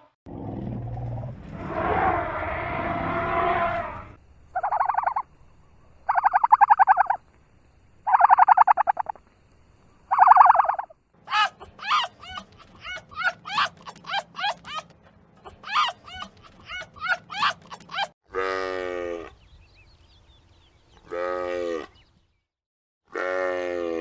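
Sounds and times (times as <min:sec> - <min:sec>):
harsh animal call: 0:00.3 - 0:05.2
rattling bird calls: 0:04.6 - 0:05.2, 0:06.1 - 0:07.2, 0:08.1 - 0:09.2, 0:10.1 - 0:10.9.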